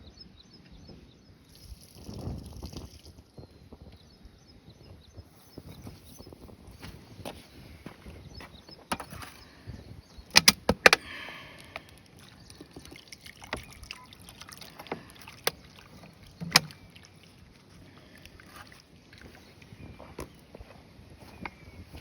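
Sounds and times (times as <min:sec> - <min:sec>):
sharp knocks and clicks: 0:10.3 - 0:11.0, 0:16.4 - 0:16.8.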